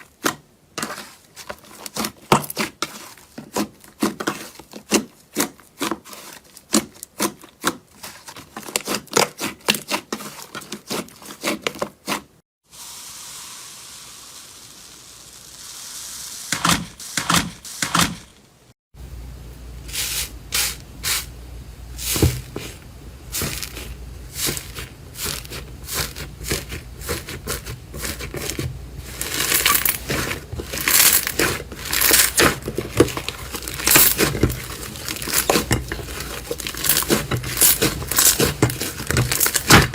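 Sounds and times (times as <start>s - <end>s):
steady hiss: 12.7s - 17.8s
tearing and crinkling: 23.4s - 39.9s.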